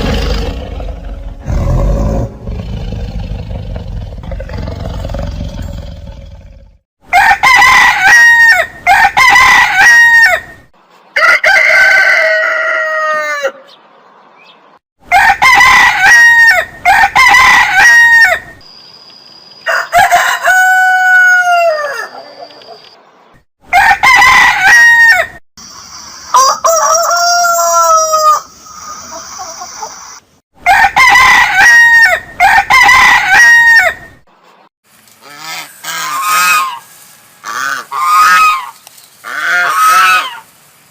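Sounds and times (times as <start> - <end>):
rooster crowing: 7.1 - 10.6, 11.2 - 13.7, 15.1 - 18.5, 19.6 - 22.5, 23.7 - 25.4, 26.3 - 28.5, 30.6 - 34.1.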